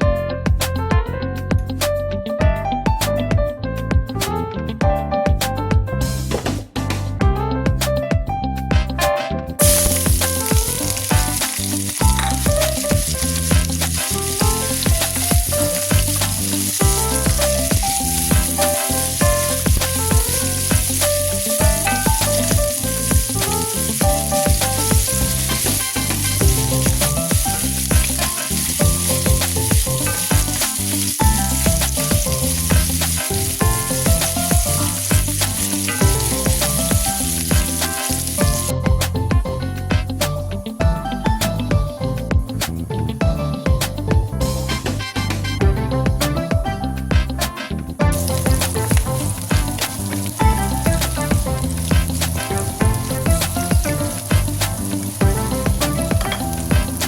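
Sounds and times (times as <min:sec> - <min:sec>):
background music with beat: 0:00.0 - 0:57.0
chicken sizzling in hot oil: 0:09.6 - 0:38.7, 0:48.1 - 0:57.0.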